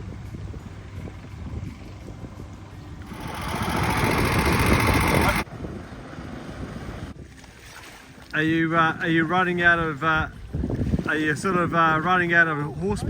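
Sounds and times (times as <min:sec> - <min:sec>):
outboard motor rumbling: 0:01.1 - 0:05.4.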